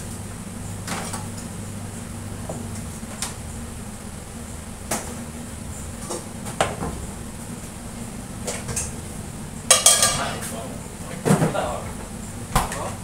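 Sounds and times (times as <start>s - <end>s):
steady low hum: 0.0s - 13.0s
cookware knocks and clinks: 9.7s - 10.3s.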